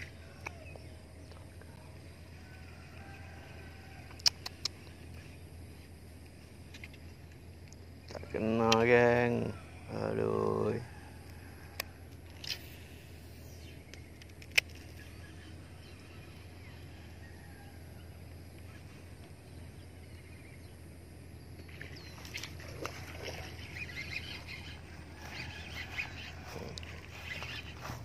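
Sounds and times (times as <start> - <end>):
steady low hum: 0.0 - 28.0
birds calling in duck-like chatter: 21.5 - 28.0.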